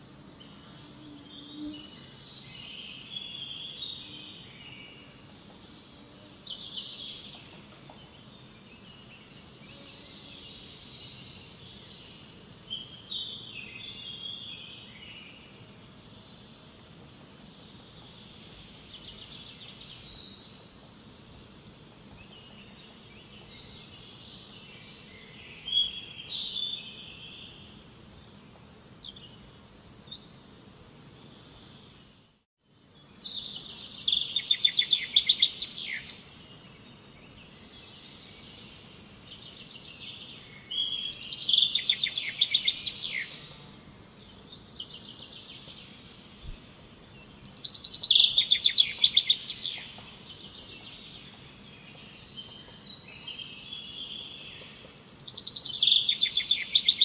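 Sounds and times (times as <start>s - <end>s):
birds singing: 33.0s - 57.0s.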